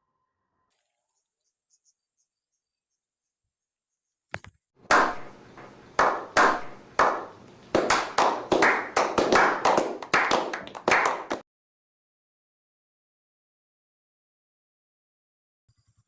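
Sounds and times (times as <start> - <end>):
sharp claps with echo: 4.8 - 11.4.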